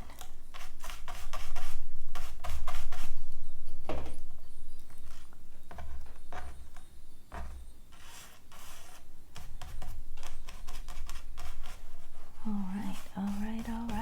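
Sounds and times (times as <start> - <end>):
paper rustling and scraping: 5.0 - 14.0.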